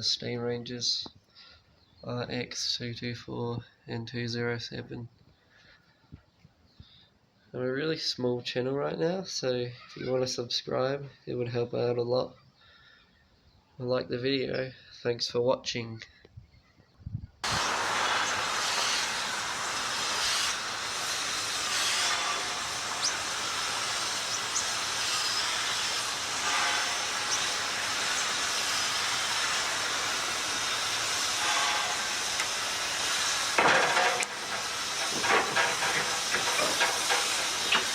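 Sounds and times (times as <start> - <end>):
steam hissing: 17.4 - 37.9.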